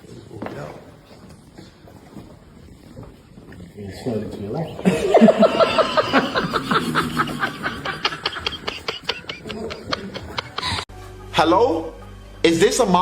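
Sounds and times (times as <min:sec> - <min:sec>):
person laughing hard: 0:04.8 - 0:10.9.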